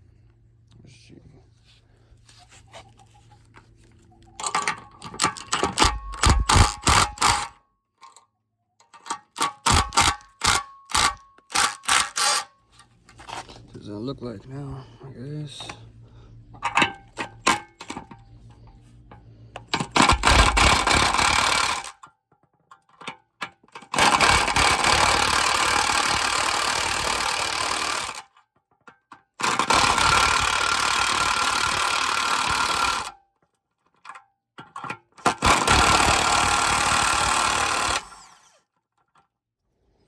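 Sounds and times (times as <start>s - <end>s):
power tool bursts: 5.6s - 7.5s, 9.4s - 12.5s, 19.8s - 21.9s, 23.9s - 28.3s, 29.4s - 33.1s, 35.2s - 38.6s.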